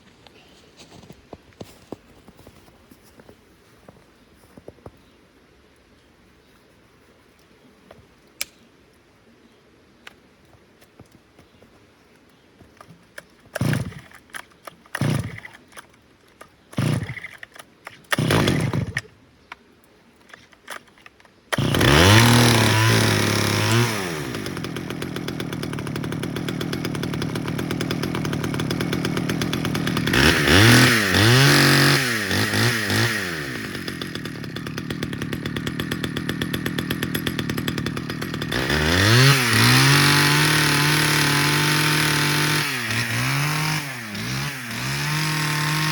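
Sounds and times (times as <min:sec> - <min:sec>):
chainsaw engine revving: 0:12.8 - 0:15.9, 0:16.7 - 0:19.1, 0:21.5 - 0:45.9
pull-starter cranking: 0:12.8 - 0:19.1, 0:20.2 - 0:45.9.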